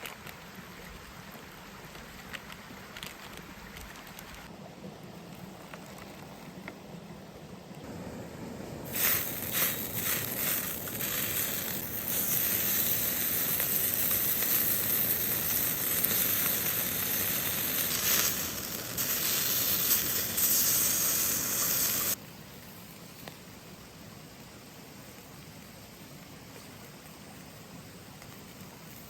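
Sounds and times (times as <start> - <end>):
sharp crackles: 0.0 - 4.5, 8.8 - 23.4, 25.0 - 29.0
loud sizzling hiss: 7.8 - 29.0.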